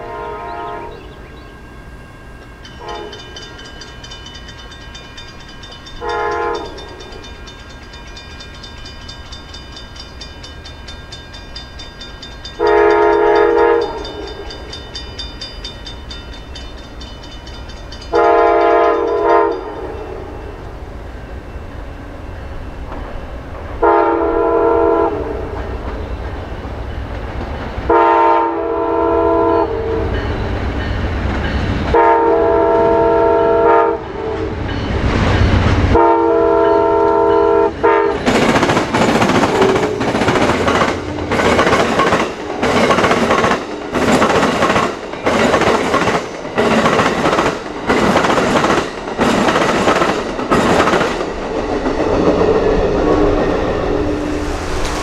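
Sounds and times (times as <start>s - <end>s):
train air horn blasts: 0.0s - 1.1s, 2.8s - 3.4s, 6.0s - 7.0s, 12.6s - 14.4s, 18.1s - 20.5s, 23.8s - 25.6s, 27.9s - 30.2s, 31.9s - 34.6s, 35.9s - 38.2s
train wheels clattering over rail joints: 38.2s - 52.4s.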